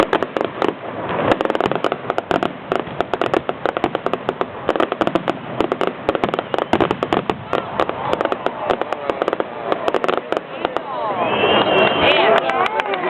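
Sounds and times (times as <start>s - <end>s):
fireworks crackling bangs: 0.0s - 13.0s.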